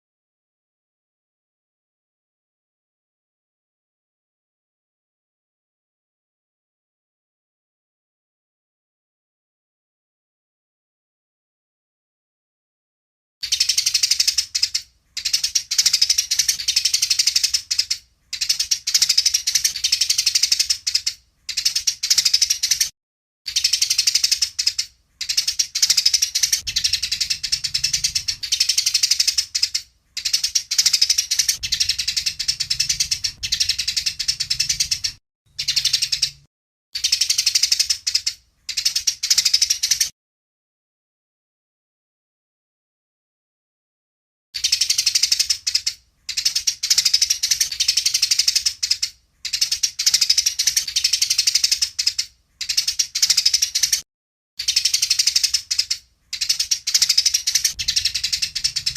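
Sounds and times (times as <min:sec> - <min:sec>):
sparrows chattering: 0:13.4 - 0:22.9, 0:23.5 - 0:40.1, 0:44.6 - 0:54.0, 0:54.6 - 0:58.9.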